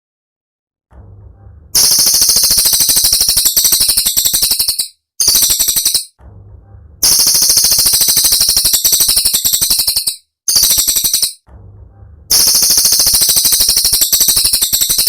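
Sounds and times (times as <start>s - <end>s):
songbird rattling trills: 1.8s - 6.2s, 7.0s - 11.4s, 12.3s - 15.0s.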